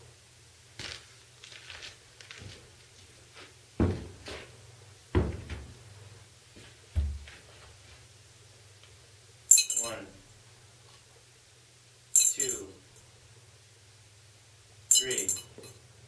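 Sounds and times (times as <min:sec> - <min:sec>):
heavy thuds: 0:03.8 - 0:04.4, 0:05.2 - 0:05.8, 0:07.0 - 0:07.3.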